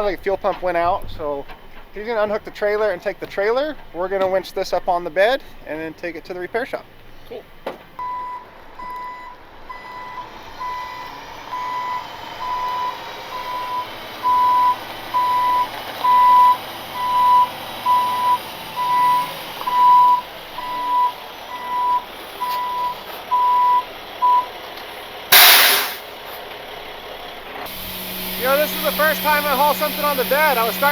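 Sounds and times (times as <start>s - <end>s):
reverse alarm beeping: 8.0s - 24.5s, 25.3s - 26.0s, 27.7s - 30.9s
truck engine running: 8.4s - 30.9s
loud hiss of air: 25.3s - 26.1s, 27.7s - 30.9s.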